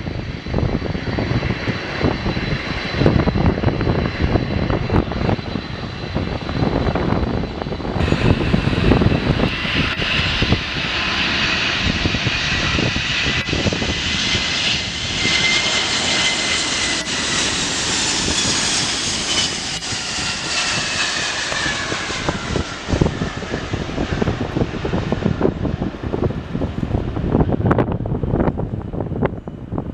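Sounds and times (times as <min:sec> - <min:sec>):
jet engines whining past: 0:00.0 - 0:29.9
wind buffeting microphone: 0:00.0 - 0:29.9.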